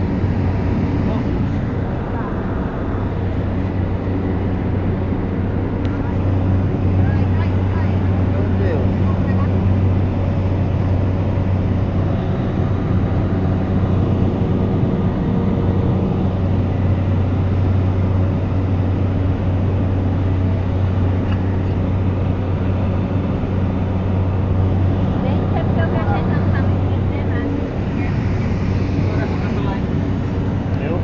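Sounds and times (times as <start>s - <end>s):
small airplane engine drone: 0.0s - 31.0s.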